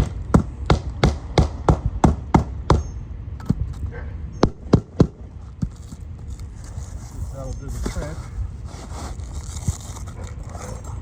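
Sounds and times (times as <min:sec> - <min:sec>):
hammer blows on shingle roof: 0:00.0 - 0:03.7, 0:04.4 - 0:05.7.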